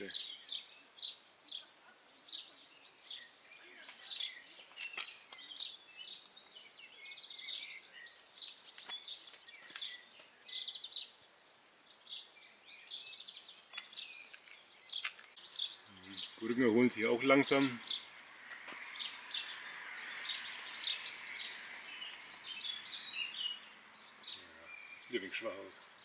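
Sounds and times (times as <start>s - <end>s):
songbirds singing and chirping: 0.0s - 26.0s.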